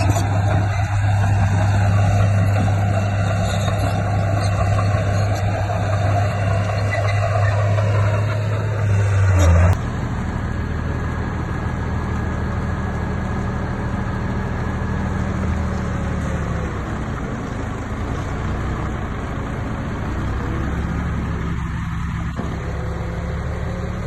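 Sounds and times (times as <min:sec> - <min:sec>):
bulldozer diesel engine running: 0:00.0 - 0:24.0.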